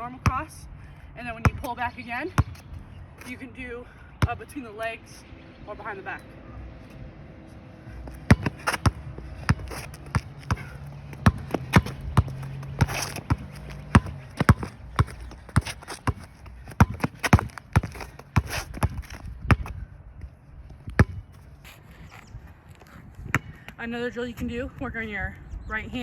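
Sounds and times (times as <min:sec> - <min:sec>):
basketball bouncing: 0:08.1 - 0:19.8, 0:20.9 - 0:21.3, 0:23.2 - 0:23.8.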